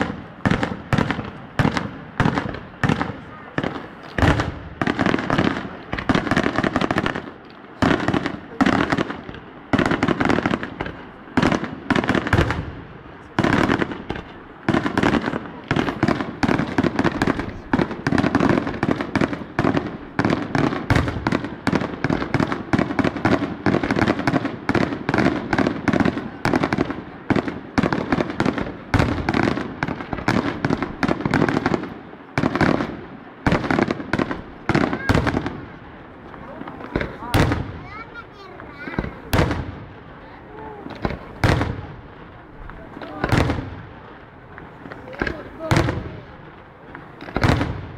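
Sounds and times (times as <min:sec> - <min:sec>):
fireworks banging: 0:00.0 - 0:47.9.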